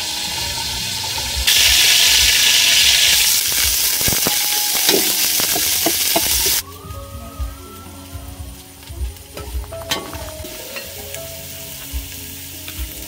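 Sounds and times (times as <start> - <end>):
paste sizzling in hot oil: 0.0 - 6.6.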